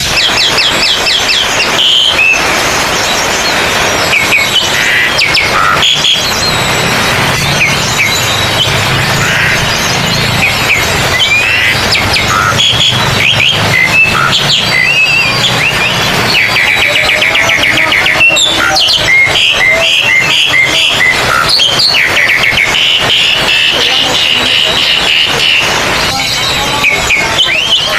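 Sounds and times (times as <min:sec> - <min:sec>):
songbirds whistling and chirping: 0:00.0 - 0:27.9.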